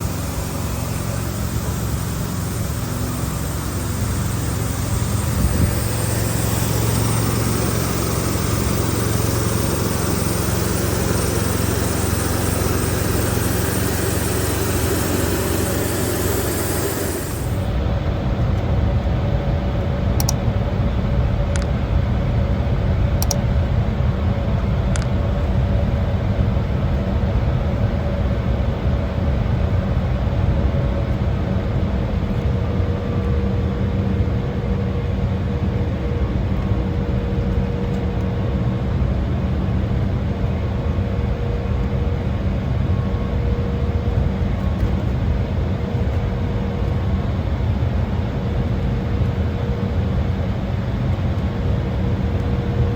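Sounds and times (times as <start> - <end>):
cabin air hissing: 0.0 - 17.8
jet engines idling: 0.0 - 18.7.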